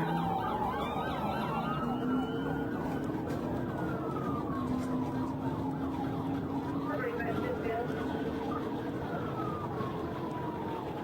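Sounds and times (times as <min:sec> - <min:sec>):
police sirens wailing: 0:00.0 - 0:11.0
vehicle road noise: 0:00.0 - 0:11.0.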